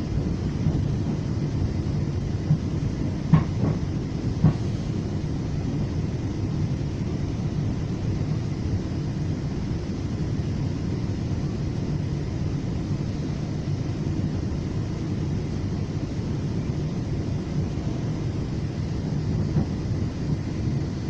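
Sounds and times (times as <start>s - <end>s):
train rumble inside coach: 0.0s - 21.0s.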